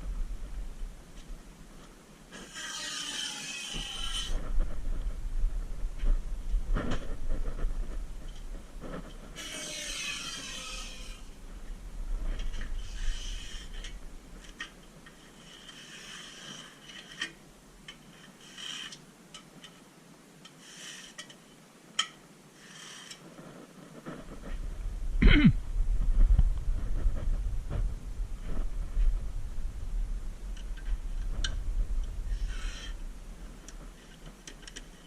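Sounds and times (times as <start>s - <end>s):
rubbing and scraping strokes: 2.3s - 5.2s, 6.0s - 11.4s, 12.1s - 17.4s, 18.0s - 19.0s, 22.6s - 24.9s, 30.4s - 35.0s.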